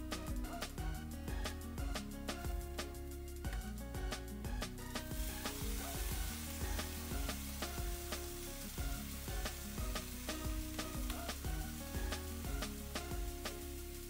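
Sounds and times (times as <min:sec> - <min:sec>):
background music with beat: 0:00.0 - 0:14.0
food sizzling in a wok: 0:04.7 - 0:14.0.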